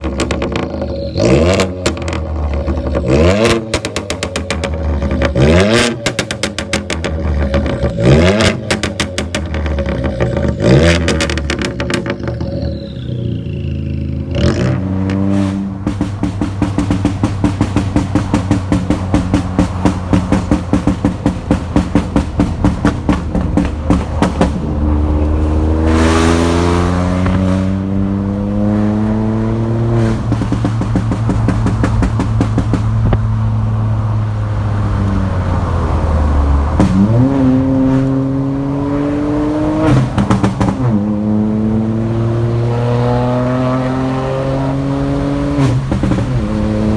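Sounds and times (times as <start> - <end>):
car engine revving: 0.0 - 46.9
exhaust crackling and popping: 0.0 - 46.9.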